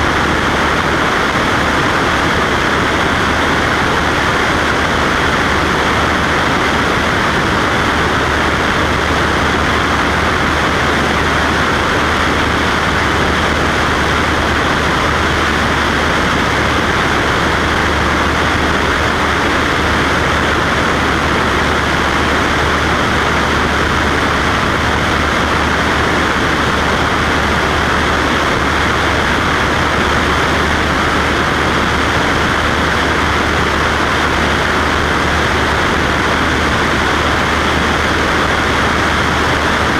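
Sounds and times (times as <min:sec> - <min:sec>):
propeller plane engine humming: 0:00.0 - 0:39.9.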